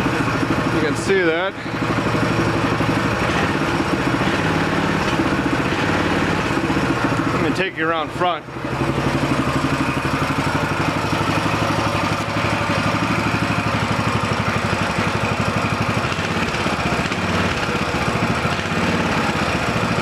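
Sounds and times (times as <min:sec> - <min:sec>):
mini bike engine idling: 0:00.0 - 0:20.0.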